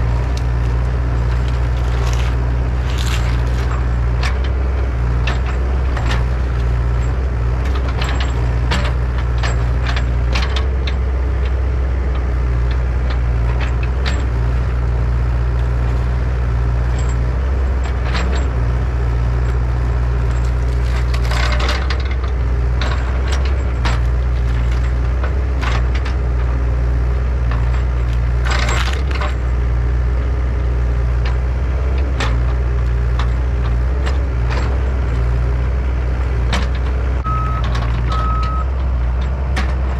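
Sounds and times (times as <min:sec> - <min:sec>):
scraping crackling tree: 0:00.0 - 0:10.8, 0:11.4 - 0:22.8
sharp clanks and knocks: 0:00.0 - 0:26.7, 0:27.4 - 0:29.8, 0:31.2 - 0:39.9
excavator engine running: 0:00.0 - 0:39.9.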